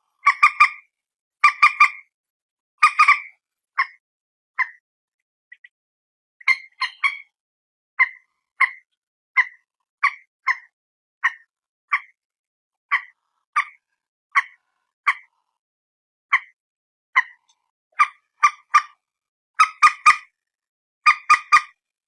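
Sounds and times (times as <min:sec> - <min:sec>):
moorhen calling: 0:00.2 - 0:02.1, 0:02.8 - 0:04.0, 0:04.6 - 0:04.8, 0:06.4 - 0:07.3, 0:08.0 - 0:12.2, 0:12.9 - 0:13.8, 0:14.4 - 0:15.3, 0:17.2 - 0:19.0, 0:19.6 - 0:20.3, 0:21.1 - 0:21.8.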